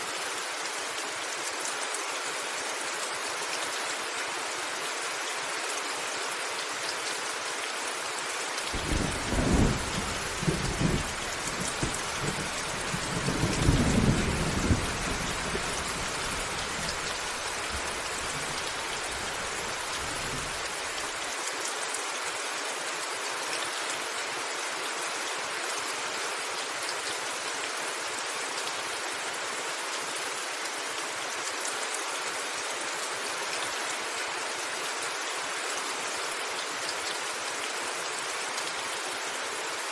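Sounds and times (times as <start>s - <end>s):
rain pattering on a roof: 0.0s - 39.9s
thunder rumbling: 8.8s - 17.2s.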